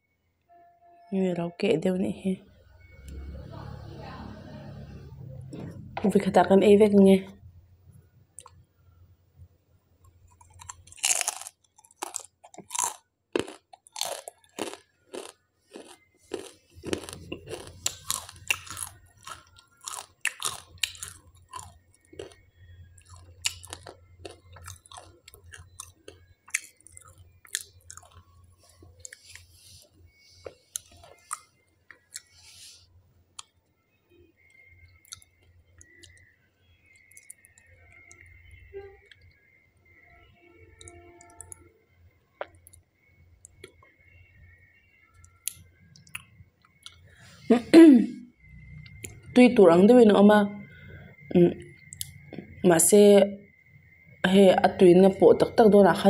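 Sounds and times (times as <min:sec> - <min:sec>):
crunching and chewing chip: 0:10.0 - 0:32.8, 0:34.4 - 0:38.4.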